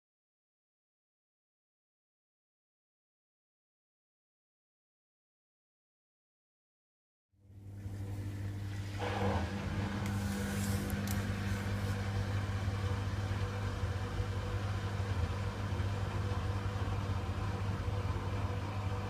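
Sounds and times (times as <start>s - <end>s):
washer-dryer humming: 7.5s - 19.0s.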